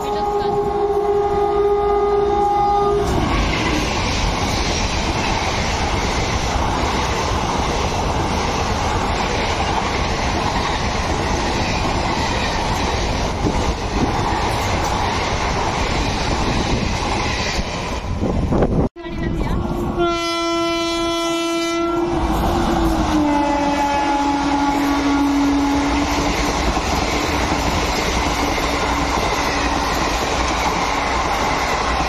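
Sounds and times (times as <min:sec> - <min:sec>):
locomotive horn: 0:00.0 - 0:03.8, 0:19.0 - 0:26.3
train wheels running on rails: 0:00.0 - 0:32.0.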